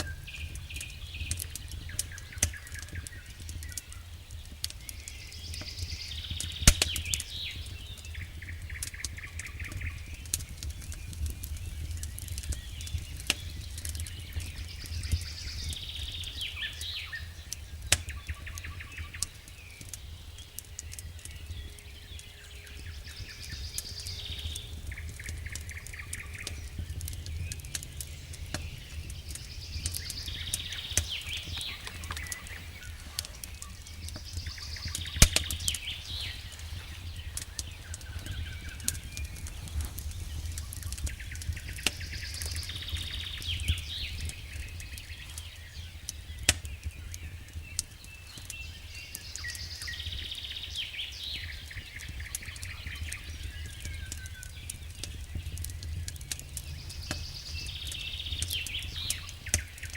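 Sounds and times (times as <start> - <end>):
wood fire crackling and popping: 0.0 - 59.9
bird chirps: 4.8 - 59.9
steady low rumble: 21.5 - 46.8, 51.2 - 59.9.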